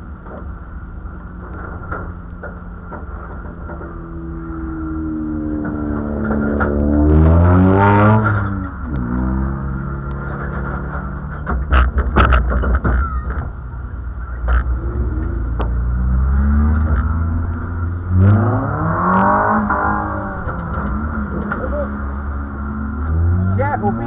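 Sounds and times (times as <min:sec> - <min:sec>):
race car engine idling: 0:00.0 - 0:06.9, 0:08.4 - 0:18.2
sharp knocks and clatters: 0:01.3 - 0:04.6, 0:05.5 - 0:08.8, 0:10.2 - 0:21.8.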